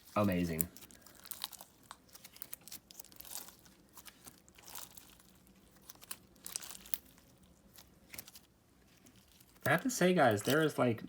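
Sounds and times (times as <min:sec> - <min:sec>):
slime squishing with crunchy clicks: 0:00.0 - 0:10.9.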